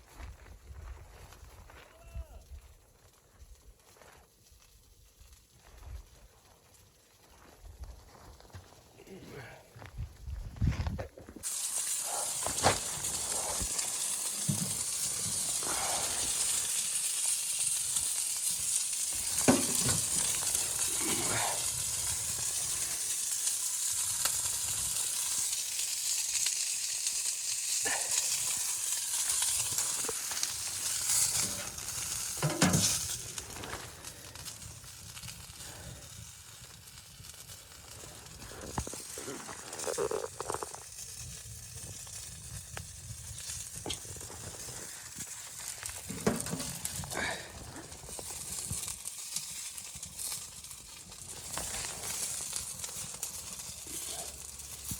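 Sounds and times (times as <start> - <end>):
food sizzling in a pan: 11.4 - 34.3, 35.0 - 54.9
pops and knocks: 19.4 - 20.2.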